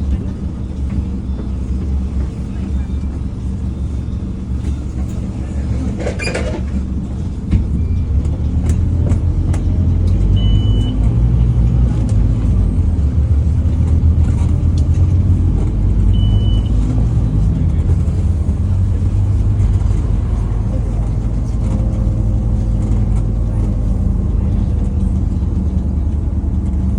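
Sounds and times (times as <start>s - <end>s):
bus diesel engine droning: 0.0s - 26.9s
short high beeps: 10.4s - 11.0s, 16.2s - 16.8s.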